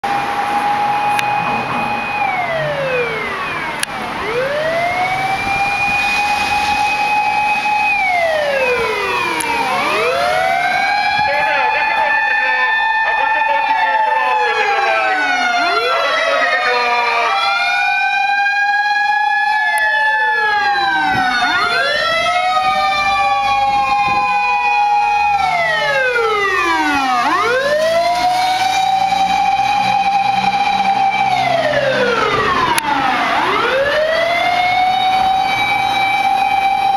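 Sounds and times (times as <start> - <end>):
fire engine siren wailing: 0.0 - 36.9.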